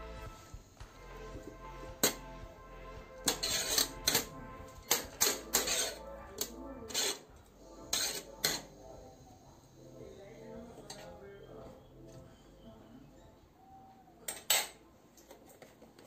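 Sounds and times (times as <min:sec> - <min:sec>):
soft background music: 0:00.0 - 0:16.0
metal spoon scraping metal pot: 0:03.2 - 0:07.3, 0:07.9 - 0:08.7.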